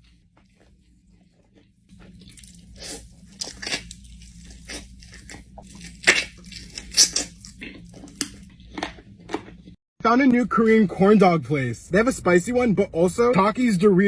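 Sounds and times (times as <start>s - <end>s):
crunching and chewing crisp food: 0.0s - 9.8s.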